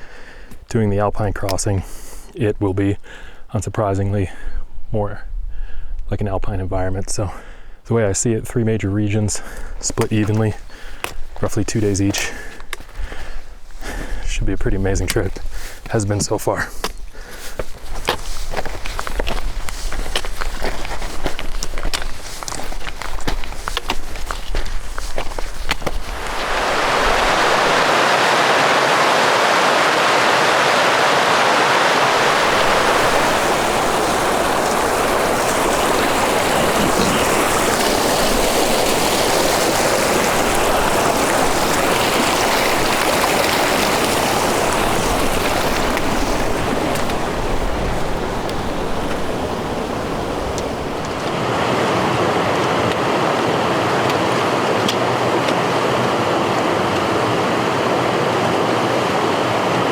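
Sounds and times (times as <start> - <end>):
rushing water: 9.2 - 59.9.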